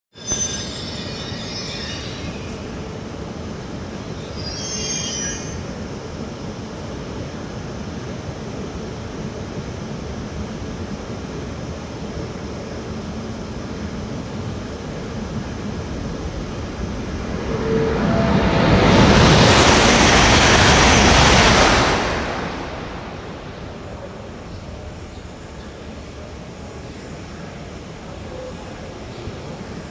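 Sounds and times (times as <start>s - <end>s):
high-speed train passing: 0.3s - 29.9s
thin high whine: 14.6s - 24.9s.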